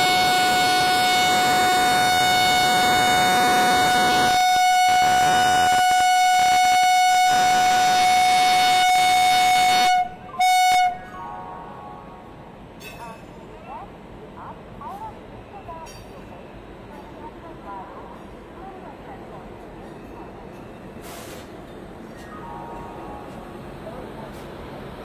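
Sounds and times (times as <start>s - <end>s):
train air horn blasts: 0.0s - 11.2s.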